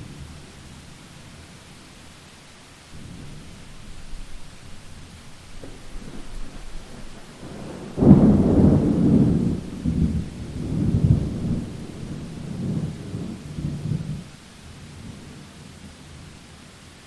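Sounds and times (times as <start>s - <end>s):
steady rain: 0.0s - 17.0s
thunder clap rumbling: 3.0s - 14.3s.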